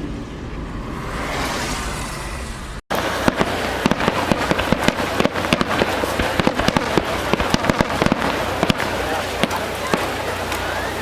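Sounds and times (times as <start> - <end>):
steady rumble: 0.0 - 11.0
fireworks bangs and crackles: 2.9 - 11.0.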